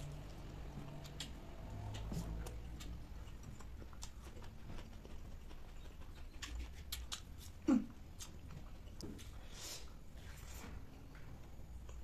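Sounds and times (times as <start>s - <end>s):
wet chewing clicks and smacks: 0.0s - 9.5s.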